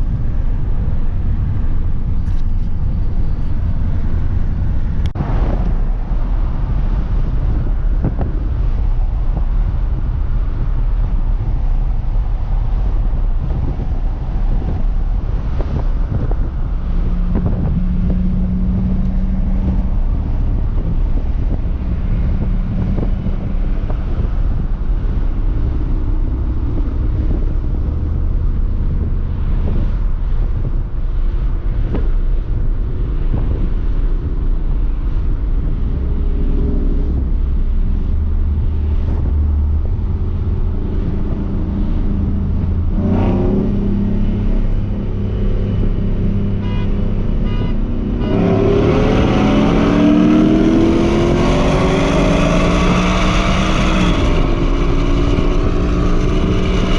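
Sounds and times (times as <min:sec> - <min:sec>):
car engine droning and revving: 0:00.0 - 0:56.9.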